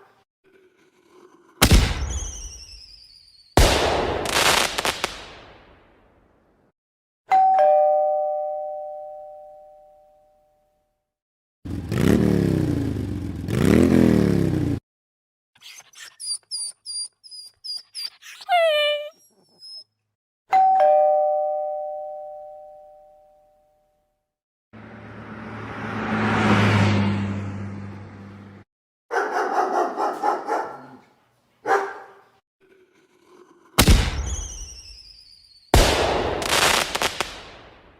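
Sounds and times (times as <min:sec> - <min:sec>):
two-note doorbell chime: 0:07.3 - 0:10.7, 0:20.5 - 0:23.8.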